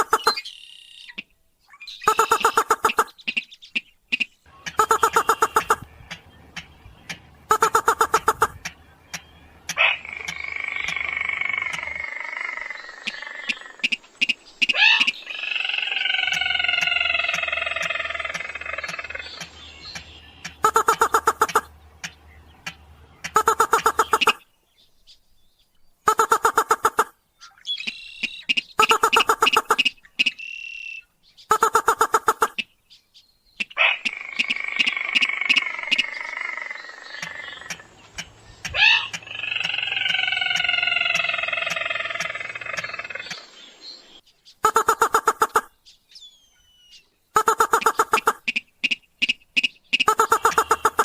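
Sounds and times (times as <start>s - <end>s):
rapid churring bird call: 0.0s - 24.5s, 26.0s - 32.7s, 33.6s - 43.8s, 44.6s - 45.8s, 46.8s - 51.0s
bird calls of short repeated notes: 0.0s - 24.9s, 26.0s - 51.0s
bird buzzy trill: 4.2s - 5.9s, 19.9s - 21.7s, 23.3s - 24.4s, 47.4s - 51.0s
sharp clicks: 16.3s - 24.4s.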